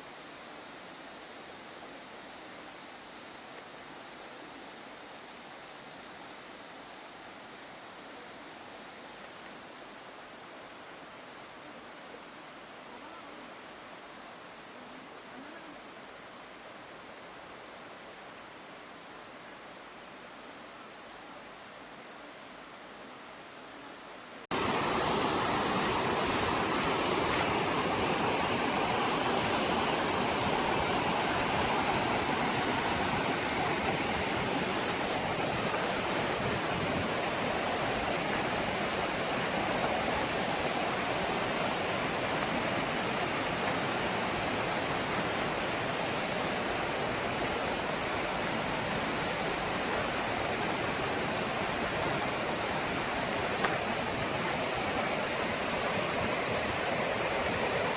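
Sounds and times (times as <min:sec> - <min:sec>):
stream roaring: 0:24.4 - 0:57.9
faint click: 0:27.2 - 0:27.5.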